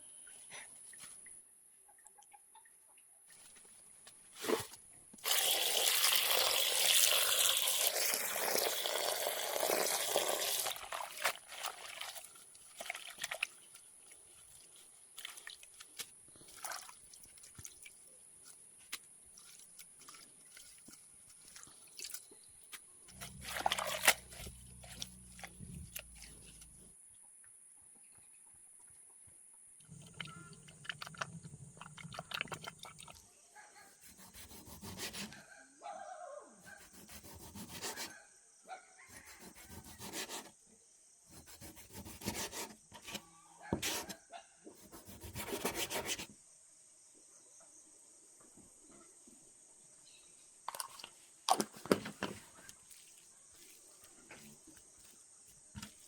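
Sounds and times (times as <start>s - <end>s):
water pouring: 5.2s - 15.8s, 16.4s - 18.0s, 23.1s - 26.8s, 29.9s - 33.2s, 50.7s - 53.0s
water dripping: 5.2s - 26.8s, 50.7s - 52.0s.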